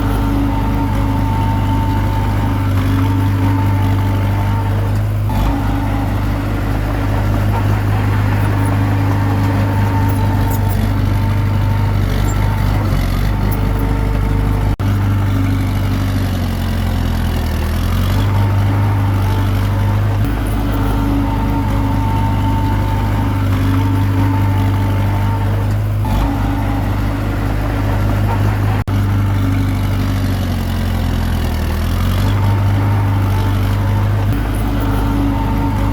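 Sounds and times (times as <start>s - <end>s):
bulldozer diesel engine running: 0.0s - 35.9s.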